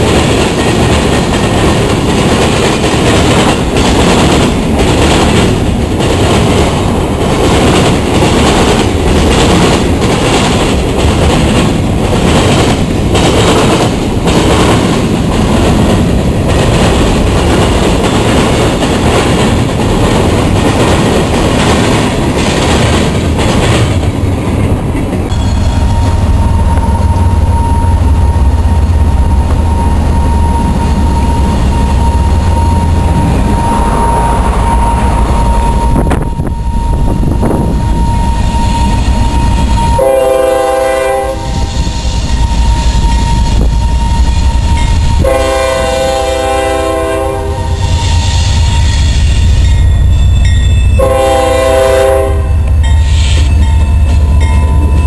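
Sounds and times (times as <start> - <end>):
steady high whine: 25.2 - 40.2.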